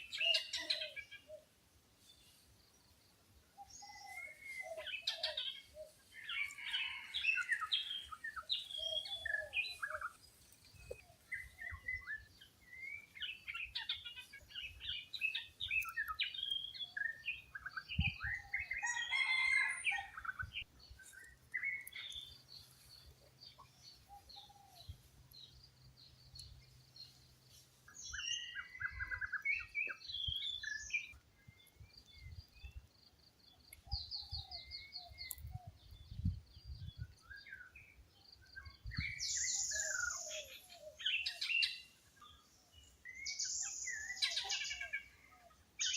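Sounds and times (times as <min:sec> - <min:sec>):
birds chirping: 0:00.0 - 0:45.9.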